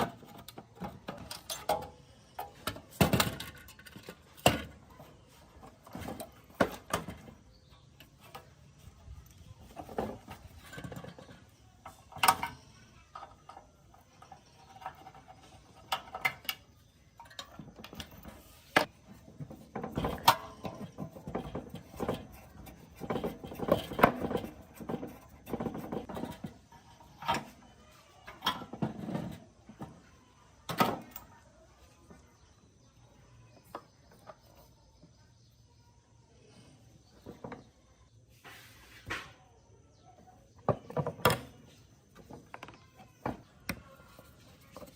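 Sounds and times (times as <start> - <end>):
scraping and rattling: 0.0 - 30.1
tools clicking and knocking: 9.7 - 27.6.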